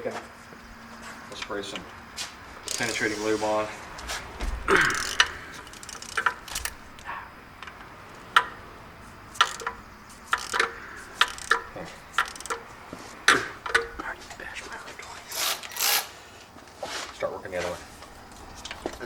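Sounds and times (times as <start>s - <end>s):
ratchet wrench clicking: 2.6s - 3.7s, 4.7s - 7.1s, 9.3s - 12.8s, 15.3s - 16.2s.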